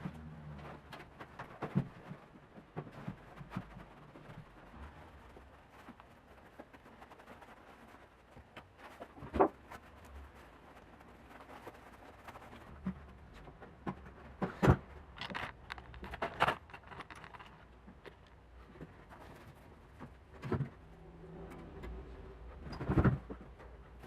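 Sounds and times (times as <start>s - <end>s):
hands working with tools: 6.7s - 20.8s.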